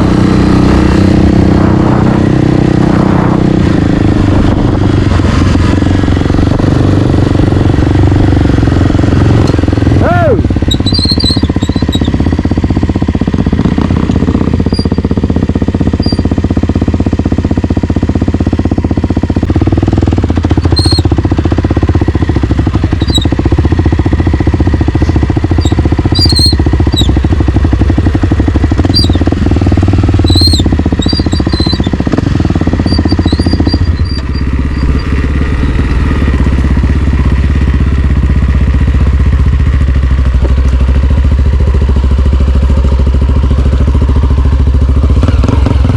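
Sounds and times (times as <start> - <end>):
dirt bike engine running: 0.0 - 45.9
short high squeaks: 10.7 - 12.1, 14.7 - 15.0, 16.0 - 16.3, 20.6 - 21.1, 23.0 - 23.3, 25.0 - 27.2, 28.9 - 29.2, 30.2 - 32.0, 32.8 - 35.2.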